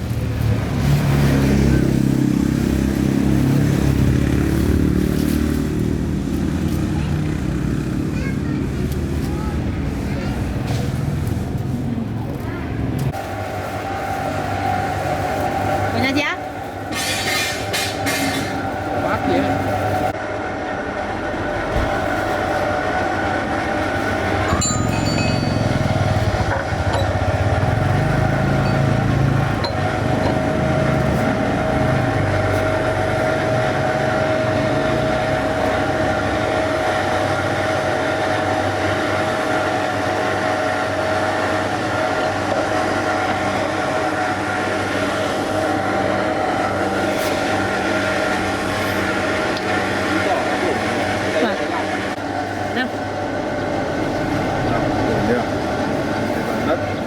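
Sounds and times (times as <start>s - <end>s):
machine whine and drone: 12.7s - 57.0s.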